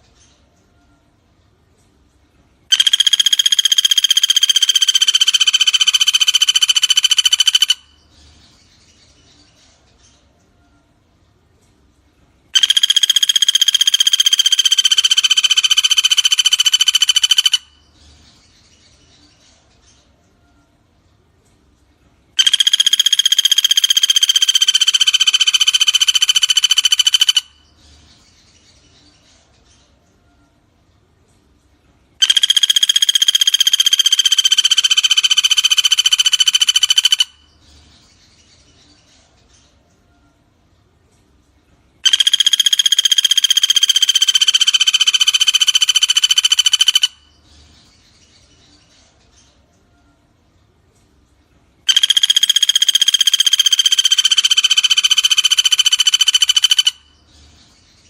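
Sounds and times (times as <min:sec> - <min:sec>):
faint bird chirps: 0:00.0 - 0:58.0
woodpecker rattling trill: 0:02.7 - 0:08.0, 0:12.6 - 0:17.9, 0:22.4 - 0:27.8, 0:32.2 - 0:37.6, 0:42.0 - 0:47.4, 0:51.9 - 0:57.2
faint insects chirping: 0:02.7 - 0:09.2, 0:12.5 - 0:19.2, 0:22.3 - 0:29.1, 0:51.9 - 0:58.0.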